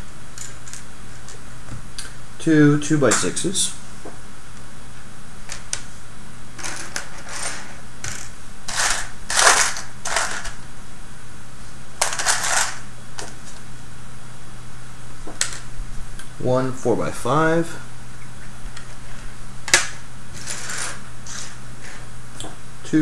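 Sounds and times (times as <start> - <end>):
steady low hum: 0.0 - 23.0
plastic pieces clattering: 6.6 - 10.6, 12.0 - 13.3, 19.7 - 21.0.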